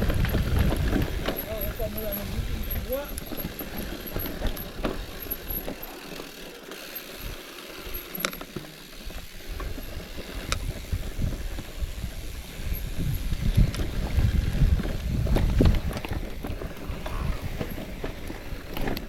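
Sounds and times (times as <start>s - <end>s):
wind buffeting microphone: 0.0s - 5.5s, 9.5s - 18.8s
bicycle sharp clicks: 0.0s - 19.0s.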